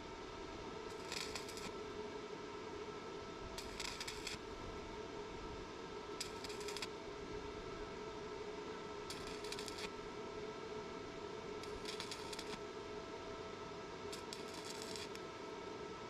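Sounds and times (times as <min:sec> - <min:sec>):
steady electrical hum: 0:00.0 - 0:16.0
electric arc welding crackle: 0:00.9 - 0:01.7, 0:03.6 - 0:04.4, 0:06.2 - 0:06.9, 0:09.1 - 0:09.9, 0:11.6 - 0:12.6, 0:14.1 - 0:15.2.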